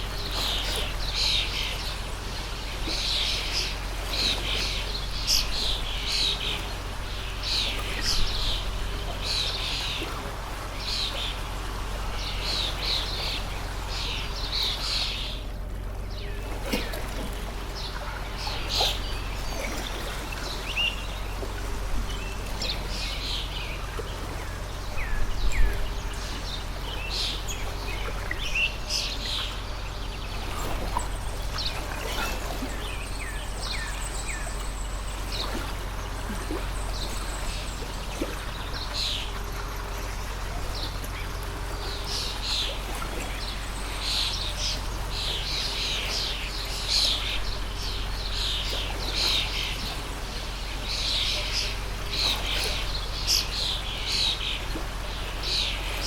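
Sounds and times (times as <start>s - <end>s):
birds chirping: 0.0s - 56.0s
water stream rushing: 0.0s - 56.0s.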